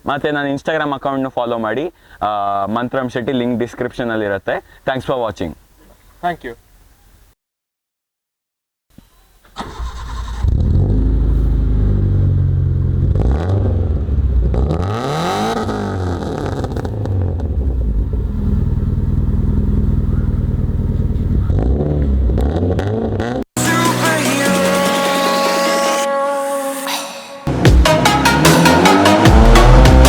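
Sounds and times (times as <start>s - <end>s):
car engine starting and idling: 9.5s - 22.9s
engine revving: 9.7s - 23.5s, 27.5s - 30.0s.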